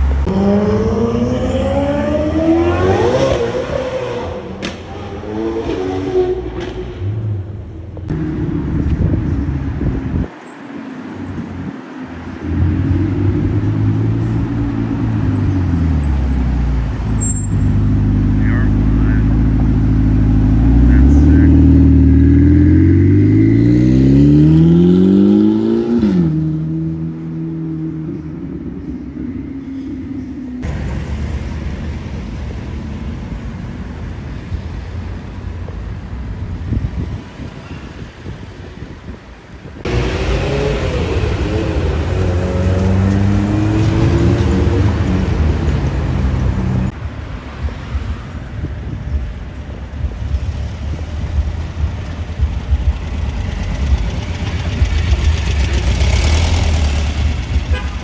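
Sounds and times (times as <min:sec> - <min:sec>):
car engine rumbling: 0:00.0 - 0:58.0
wind buffeting microphone: 0:08.0 - 0:18.3, 0:31.5 - 0:56.1
car engine running: 0:12.6 - 0:24.2, 0:49.1 - 0:58.0.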